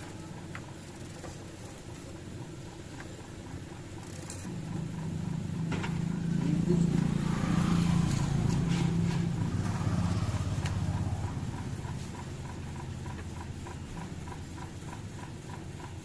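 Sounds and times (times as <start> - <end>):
vehicle engine passing by: 4.6 - 13.5.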